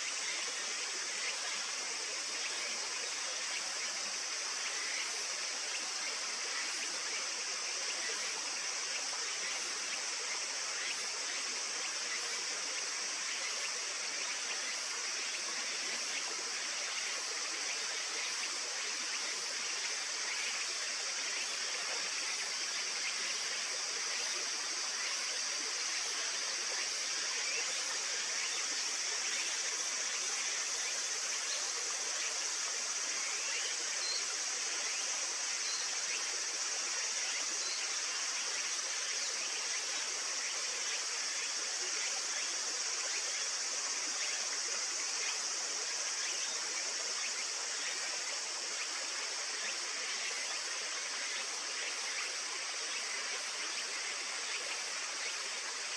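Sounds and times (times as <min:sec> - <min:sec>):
stream flowing: 0:00.0 - 0:55.9.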